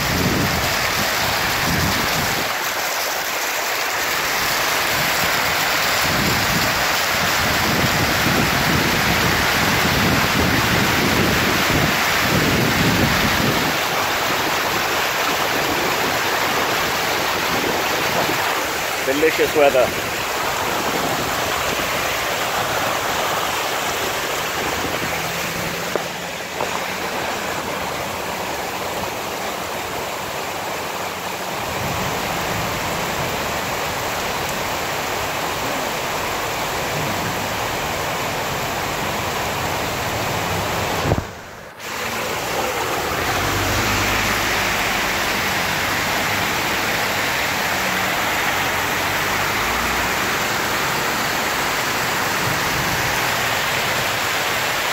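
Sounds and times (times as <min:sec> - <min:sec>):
heavy rain: 0:00.0 - 0:54.9
water rushing over street: 0:00.0 - 0:54.9.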